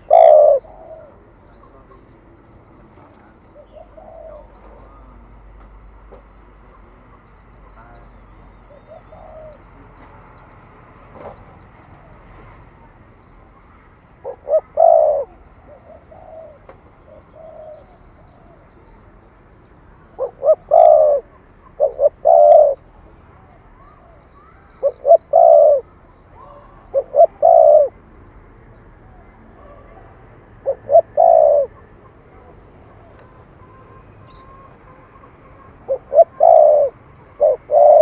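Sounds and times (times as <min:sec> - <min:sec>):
dove cooing: 0:00.0 - 0:19.0, 0:19.8 - 0:28.2, 0:28.8 - 0:38.0.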